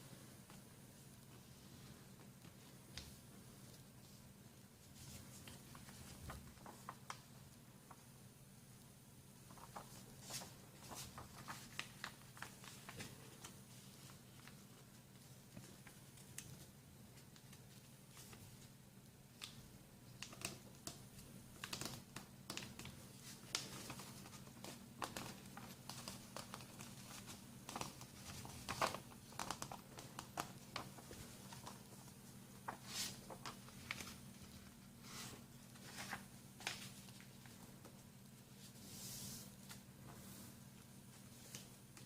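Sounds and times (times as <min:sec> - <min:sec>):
paper crinkling and folding: 0:04.8 - 0:08.1, 0:09.4 - 0:18.7, 0:19.4 - 0:40.5
paper creasing crackles: 0:09.5 - 0:14.6, 0:21.6 - 0:37.6.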